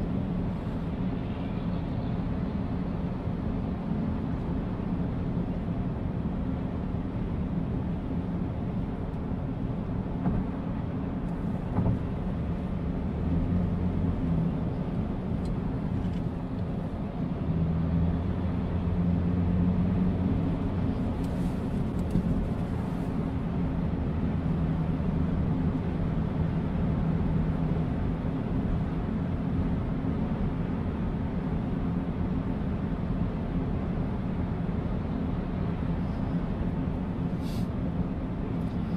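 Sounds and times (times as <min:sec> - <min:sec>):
road noise: 0:00.0 - 0:38.9.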